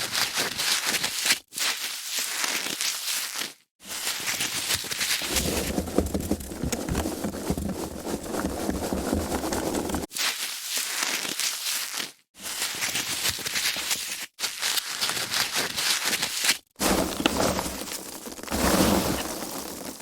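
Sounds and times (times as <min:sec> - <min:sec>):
foam packaging crackling: 0:04.7 - 0:10.1.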